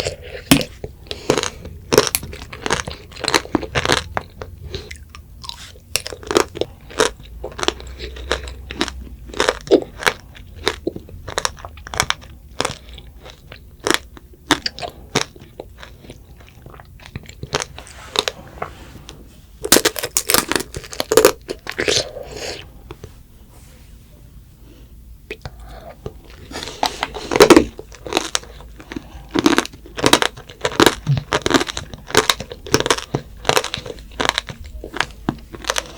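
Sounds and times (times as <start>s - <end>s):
crunching candy shell: 0.0s - 18.4s, 19.6s - 22.2s, 26.0s - 35.9s.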